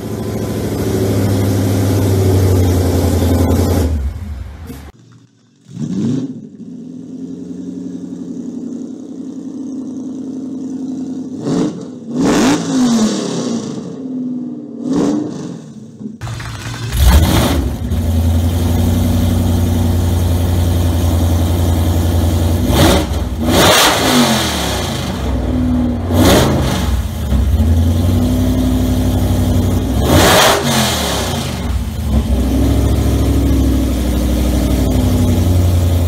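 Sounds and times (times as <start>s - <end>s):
car engine revving from idle: 16.2s - 36.0s.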